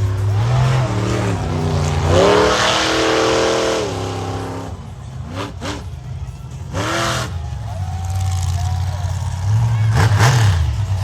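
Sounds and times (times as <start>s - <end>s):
monster truck engine revving: 0.0s - 11.0s.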